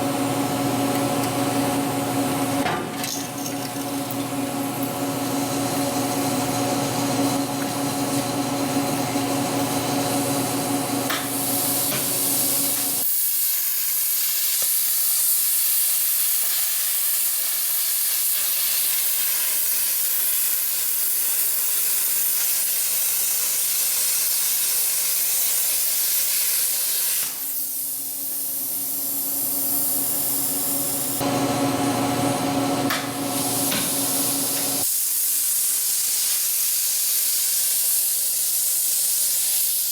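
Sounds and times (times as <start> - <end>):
plasma cutter hissing: 11.0 - 31.2, 33.1 - 39.9.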